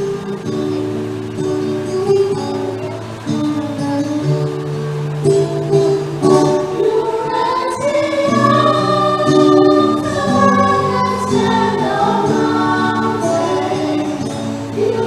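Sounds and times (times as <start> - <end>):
choir singing a hymn: 5.9 - 15.0.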